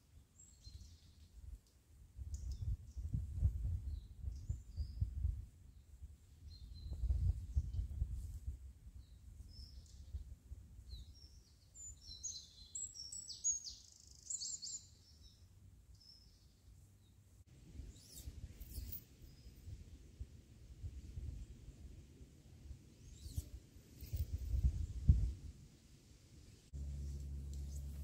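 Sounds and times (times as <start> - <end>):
songbird chirping: 0.0 - 3.2, 9.0 - 19.8
low outdoor rumble: 24.2 - 28.0.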